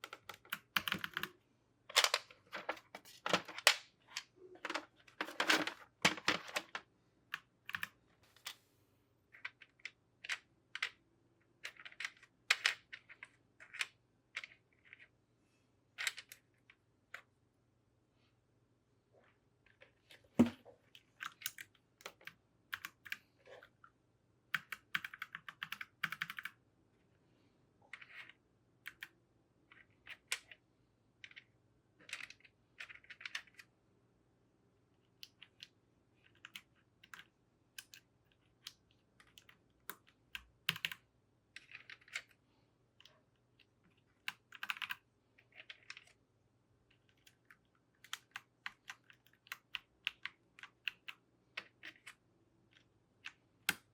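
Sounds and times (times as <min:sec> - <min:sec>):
mechanical keyboard keys clacking: 0:00.0 - 0:01.3, 0:40.7 - 0:41.0.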